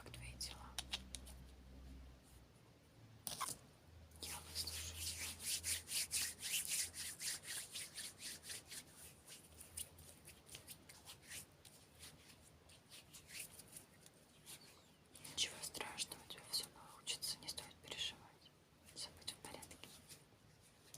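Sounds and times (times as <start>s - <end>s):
hands rubbing: 4.2s - 14.8s.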